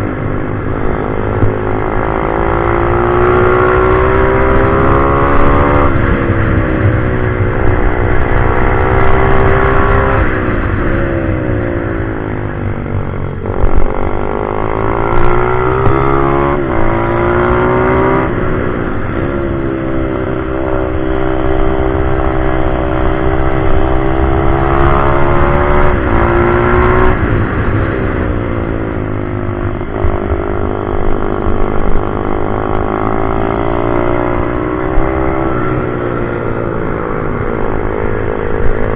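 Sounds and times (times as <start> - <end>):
pit bike engine revving: 13.4 - 27.8.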